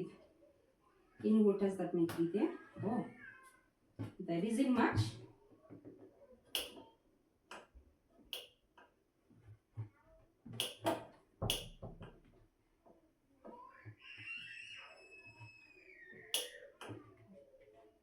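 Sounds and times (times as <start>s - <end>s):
plastic clicks and knocks: 8.4s - 12.4s.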